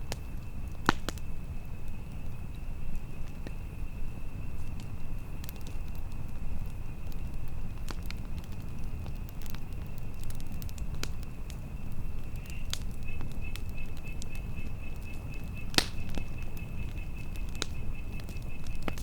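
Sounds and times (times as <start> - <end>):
campfire crackling and popping: 0.0 - 19.0
wind rumble: 0.0 - 19.0.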